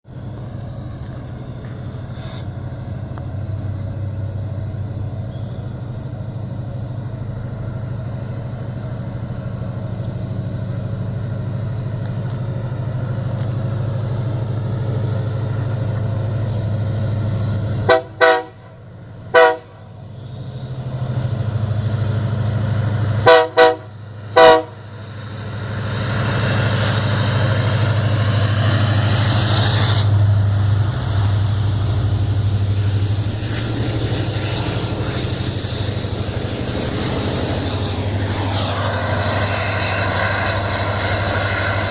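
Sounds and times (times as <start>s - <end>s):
locomotive engine drone: 0.0s - 41.9s
train horn blasts: 17.8s - 19.9s, 23.2s - 24.8s.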